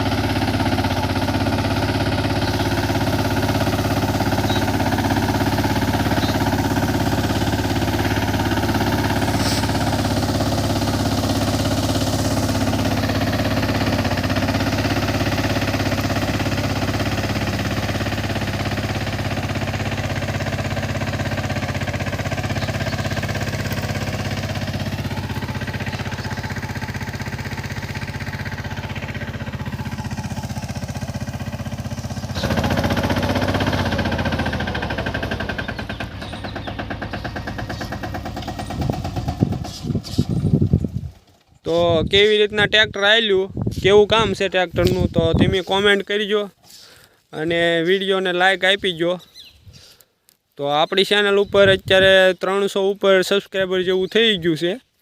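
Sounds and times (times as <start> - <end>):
tractor engine running: 0.0 - 49.5.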